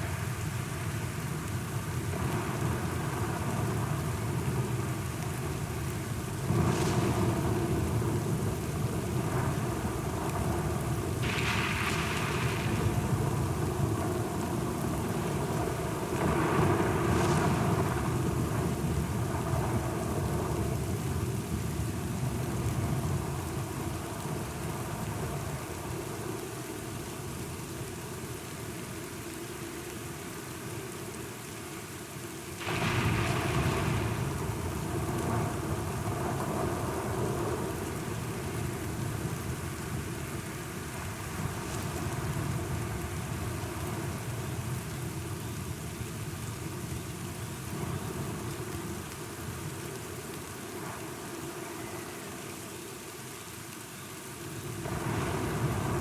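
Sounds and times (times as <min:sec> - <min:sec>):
steady rain falling: 0:00.0 - 0:56.0
rolling thunder: 0:06.3 - 0:23.8, 0:32.6 - 0:40.0.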